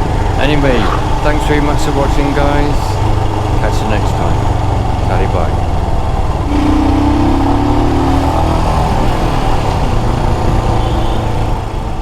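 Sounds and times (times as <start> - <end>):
wind rumble: 0.0 - 3.6.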